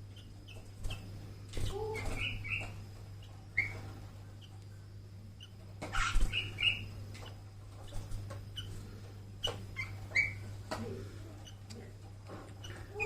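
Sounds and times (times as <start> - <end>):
bird chick chirping: 0.0 - 4.6, 5.2 - 10.6, 12.6 - 13.0
steady low hum: 0.0 - 13.0.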